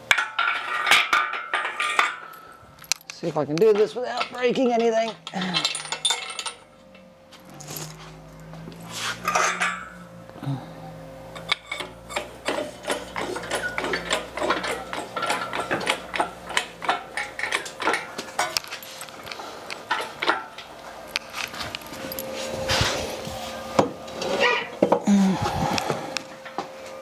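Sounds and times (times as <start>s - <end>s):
low steady hum: 0.0s - 27.0s
metal tools clinking: 0.1s - 8.5s, 9.2s - 10.0s, 11.4s - 23.3s.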